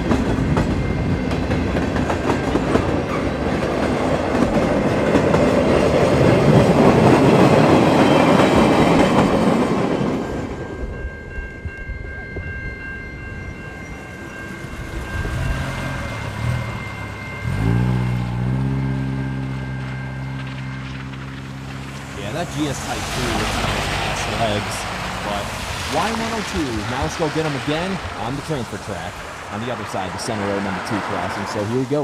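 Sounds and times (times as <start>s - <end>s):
freight train wheels clattering: 0.0s - 10.8s
low engine note: 13.0s - 28.7s.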